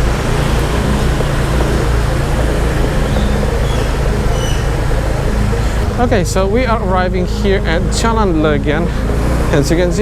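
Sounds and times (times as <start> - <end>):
car engine hum: 0.0 - 10.0
road noise: 0.0 - 10.0.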